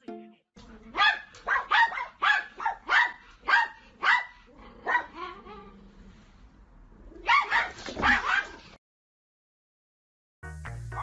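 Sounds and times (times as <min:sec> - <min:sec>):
dog barking: 0:01.0 - 0:05.4, 0:07.2 - 0:08.7.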